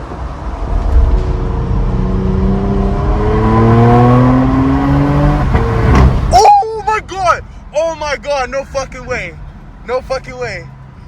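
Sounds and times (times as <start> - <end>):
car exhaust raspy rumble: 0.3 - 6.3.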